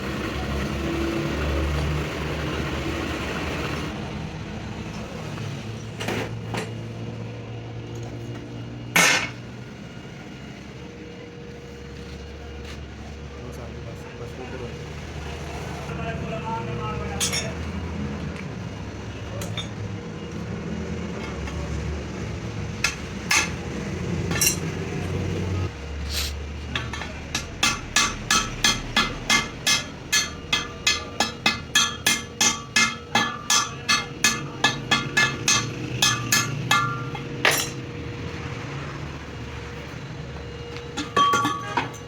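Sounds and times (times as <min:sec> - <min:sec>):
hammer striking steel: 0:17.2 - 0:17.6, 0:22.8 - 0:24.8, 0:26.7 - 0:37.9, 0:40.9 - 0:42.0.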